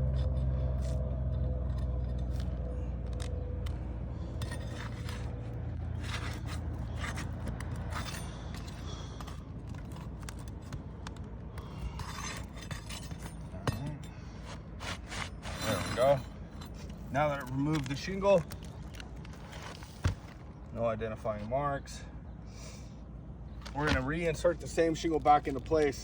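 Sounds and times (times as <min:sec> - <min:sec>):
roof shingles scraping: 0:14.5 - 0:16.2.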